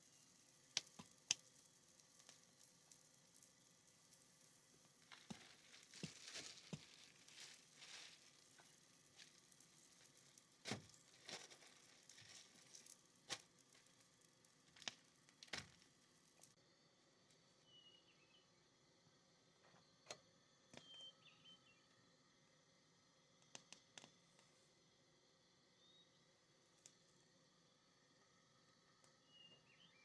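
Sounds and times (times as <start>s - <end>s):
crackling and pops: 0.0s - 16.6s, 23.3s - 24.6s, 26.6s - 27.2s
low hiss: 0.0s - 30.0s.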